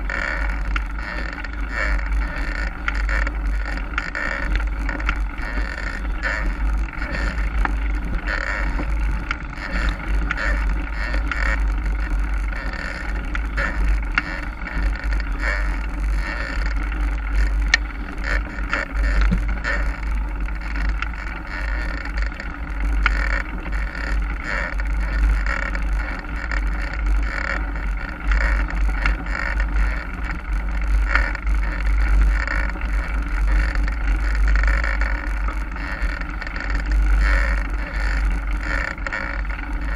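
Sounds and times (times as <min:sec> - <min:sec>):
bike clicks and rattles: 0:00.0 - 0:39.9
bike tyres rolling on dirt: 0:00.0 - 0:39.9
wind buffeting microphone: 0:00.8 - 0:21.5.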